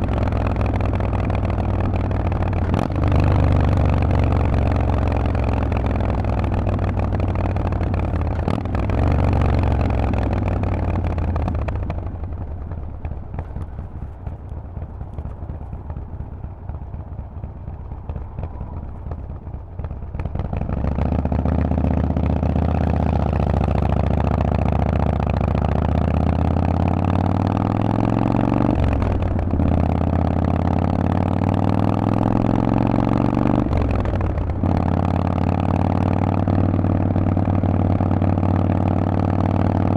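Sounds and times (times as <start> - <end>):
motorcycle engine revving: 0.0 - 39.9
motorcycle gear upshifts: 11.4 - 20.4.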